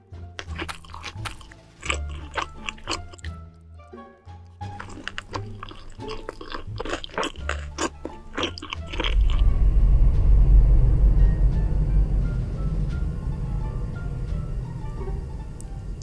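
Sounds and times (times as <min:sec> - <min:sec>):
background music: 0:00.0 - 0:16.0
crunchy chewing: 0:00.4 - 0:03.3, 0:04.6 - 0:09.5
loud steady low rumble: 0:08.8 - 0:16.0.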